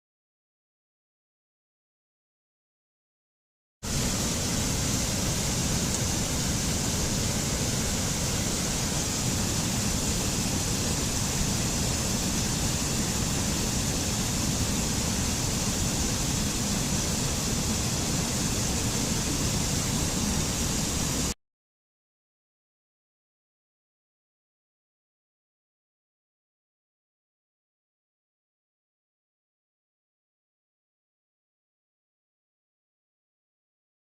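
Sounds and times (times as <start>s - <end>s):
steady rushing noise: 3.8s - 21.4s.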